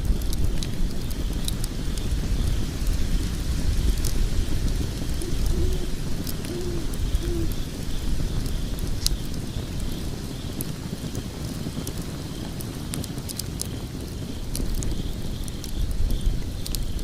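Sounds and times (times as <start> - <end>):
fire flames rumbling: 0.0 - 17.0
wood crackling and popping: 0.0 - 17.0.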